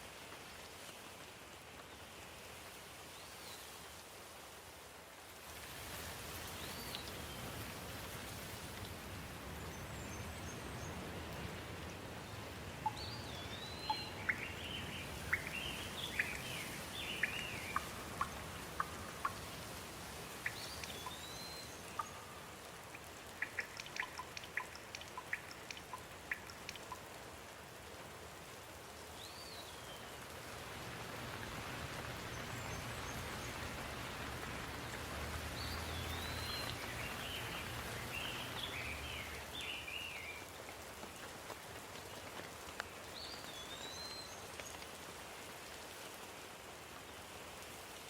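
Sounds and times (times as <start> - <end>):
steady rain falling: 0.0 - 48.0
quick chirps and ticks: 12.8 - 19.5, 22.9 - 27.1.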